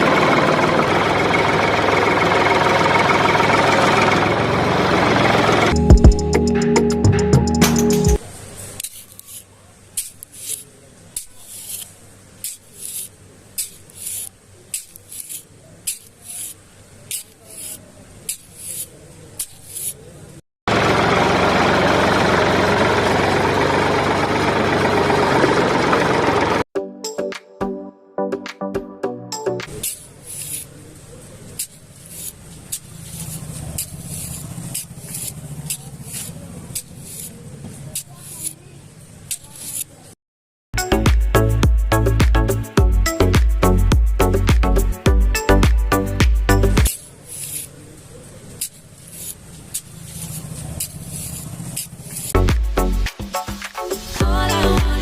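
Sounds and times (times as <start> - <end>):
short scraping strokes: 8.7 - 20.1, 29.7 - 30.9, 31.5 - 38.7, 39.3 - 40.1, 46.9 - 47.8, 48.6 - 52.4
small motor humming: 31.6 - 38.6.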